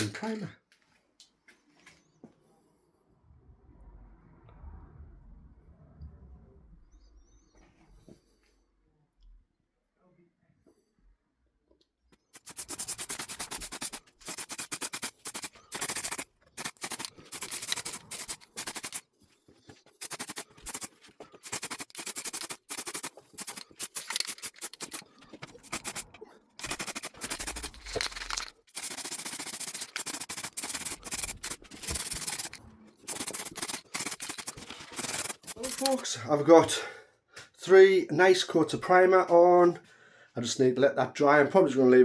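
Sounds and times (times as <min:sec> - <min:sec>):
aerosol spray can hissing: 0:12.3 - 0:19.1, 0:19.8 - 0:36.0.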